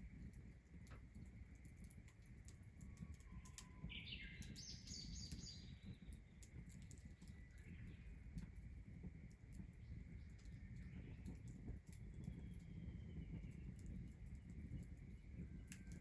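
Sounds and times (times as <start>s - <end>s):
bird chirping: 3.8s - 6.1s.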